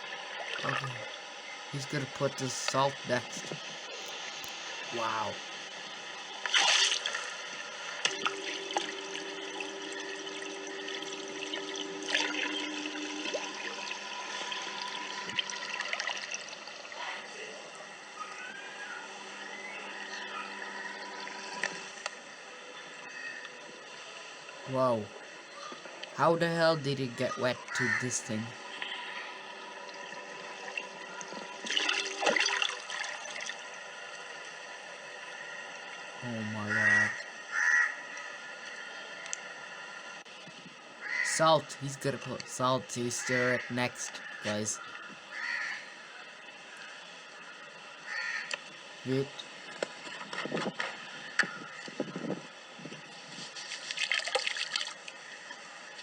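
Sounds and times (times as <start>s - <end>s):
two-note electric hum: 0.0s - 53.2s
water churning and trickling: 29.8s - 34.2s, 53.6s - 55.6s.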